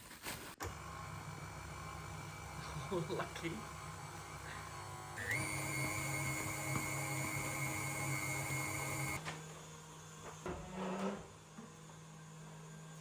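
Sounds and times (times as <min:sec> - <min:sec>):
electric mixer whining: 0:00.6 - 0:09.3.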